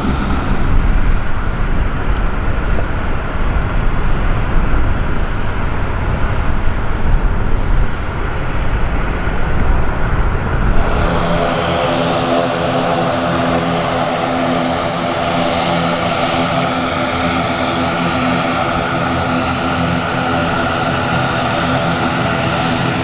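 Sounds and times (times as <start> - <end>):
aircraft engines roaring: 0.0 - 11.5.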